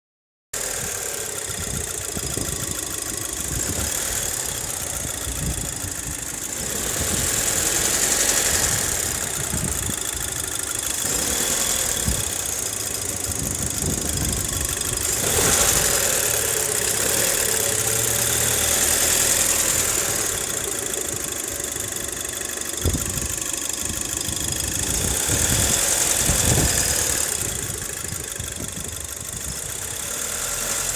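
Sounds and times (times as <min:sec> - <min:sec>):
car engine idling with knocking: 0:00.6 - 0:30.9.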